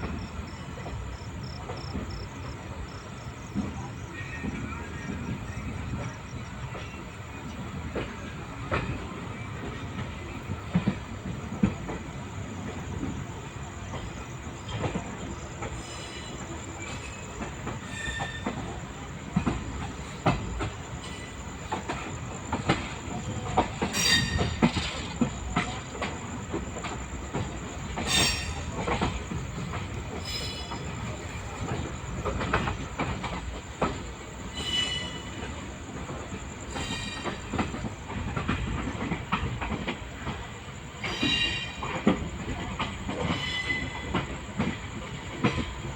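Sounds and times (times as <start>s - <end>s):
train coach rumbling on rails: 0.0s - 45.9s
wheels clacking over rail joints: 0.0s - 45.9s
metallic wheel squeals: 23.9s - 25.1s, 28.0s - 29.0s, 30.2s - 31.0s, 34.5s - 35.4s.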